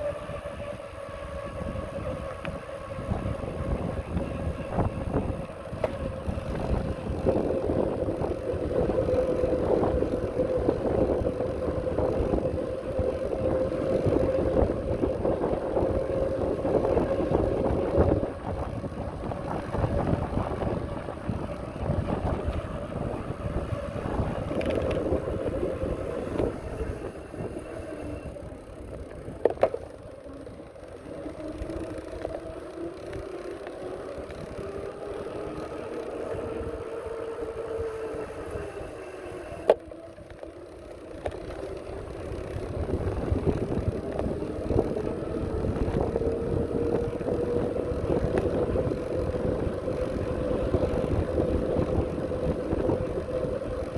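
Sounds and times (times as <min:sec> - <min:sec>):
wind on microphone: 0:00.0 - 0:29.8, 0:41.5 - 0:53.9
bicycle wheels rumbling: 0:00.0 - 0:53.9.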